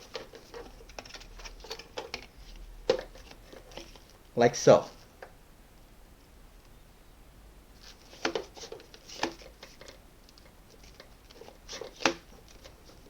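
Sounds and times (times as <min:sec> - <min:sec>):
plastic attachments clicking and knocking: 0:00.0 - 0:04.1, 0:08.0 - 0:13.0.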